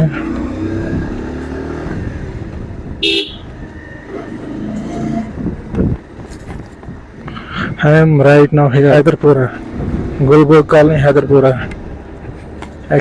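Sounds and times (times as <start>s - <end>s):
traffic: 0.0s - 13.0s
vehicle horn toot: 3.0s - 3.5s.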